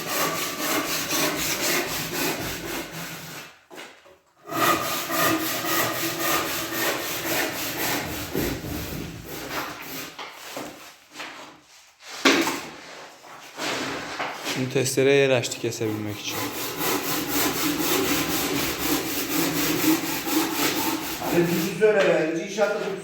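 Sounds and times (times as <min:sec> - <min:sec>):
hand saw cutting: 0:00.0 - 0:03.6, 0:04.4 - 0:10.2, 0:15.8 - 0:21.9.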